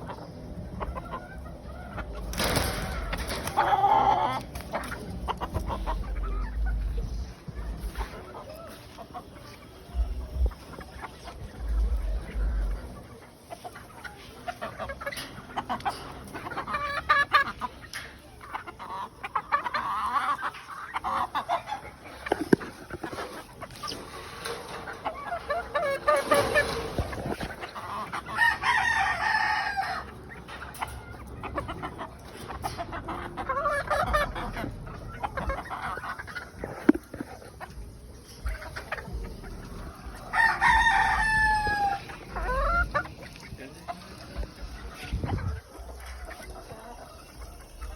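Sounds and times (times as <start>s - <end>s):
fowl clucking: 0.0s - 47.9s
rooster crowing: 40.3s - 42.0s.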